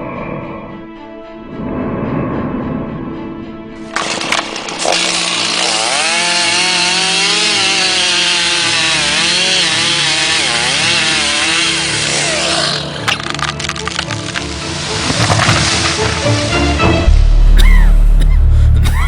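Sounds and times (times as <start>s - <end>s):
chainsaw cutting wood: 3.9s - 16.5s
sharp cracks: 3.9s - 16.7s.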